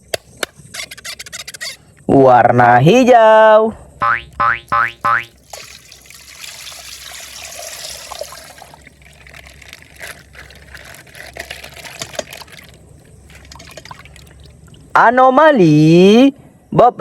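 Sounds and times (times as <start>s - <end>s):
water pouring and trickling: 5.1s - 15.0s
plastic crackling: 7.9s - 14.9s.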